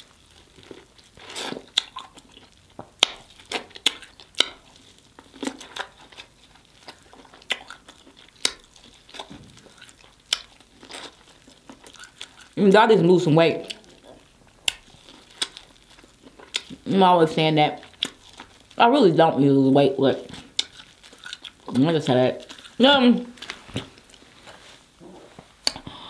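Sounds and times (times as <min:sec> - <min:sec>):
teeth crunching corn: 0:00.0 - 0:12.6, 0:13.6 - 0:16.9, 0:17.7 - 0:18.8, 0:20.2 - 0:24.2
mouth smacks: 0:25.0 - 0:26.0.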